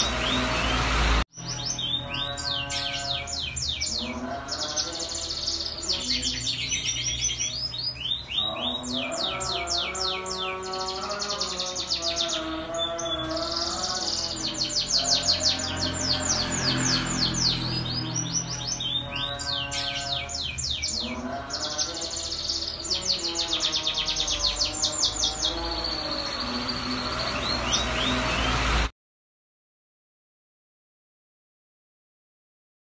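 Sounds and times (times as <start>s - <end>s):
canary singing trills: 0.0s - 28.7s.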